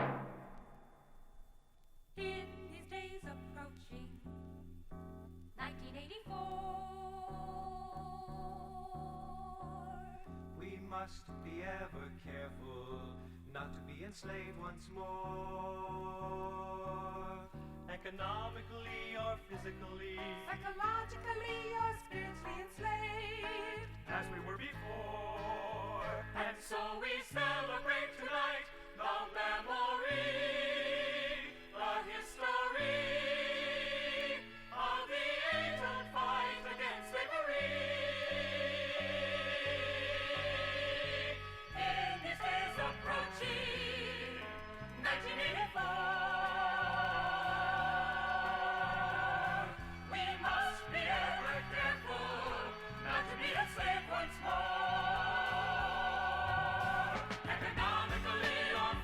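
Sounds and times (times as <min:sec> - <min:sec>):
choir singing held notes: 0:20.7 - 0:59.0.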